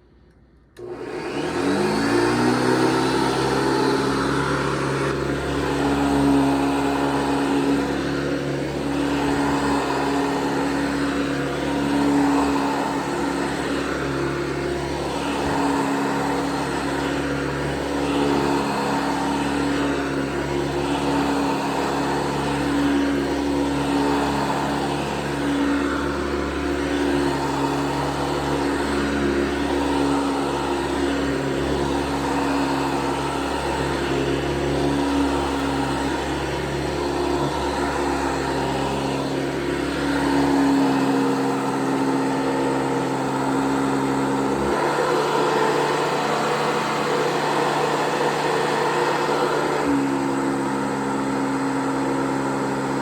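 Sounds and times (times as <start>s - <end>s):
upright vacuum cleaner running: 0.6s - 53.0s.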